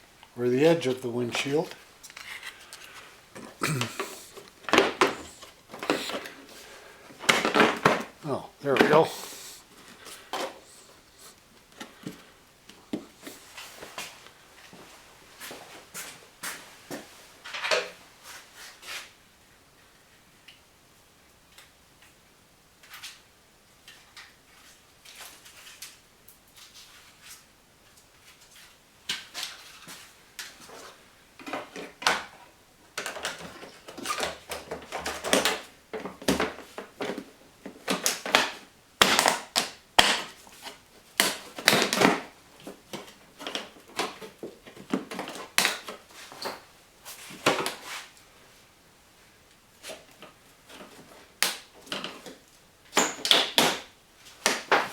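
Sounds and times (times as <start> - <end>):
plastic parts clicking and scraping: 1.3 - 9.4.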